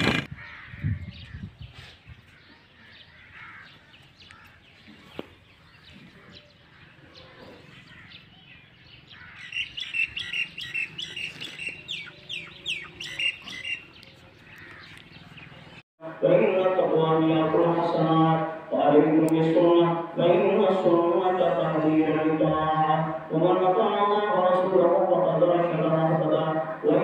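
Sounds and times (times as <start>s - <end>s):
small birds chirping: 0.1s - 15.8s.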